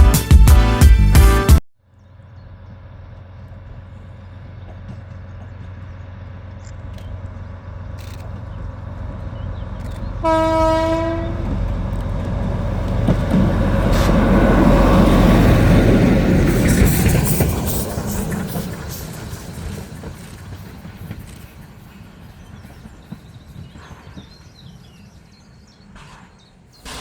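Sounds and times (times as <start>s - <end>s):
train rumble: 2.0s - 27.0s
train horn blast: 10.2s - 11.6s.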